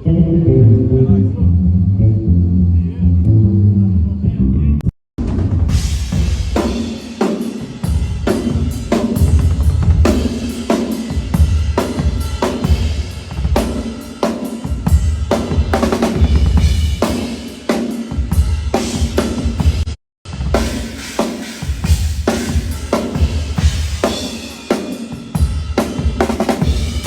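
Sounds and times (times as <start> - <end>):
heavy low bass: 0.0 - 4.9
rock drum kit groove: 5.2 - 27.0.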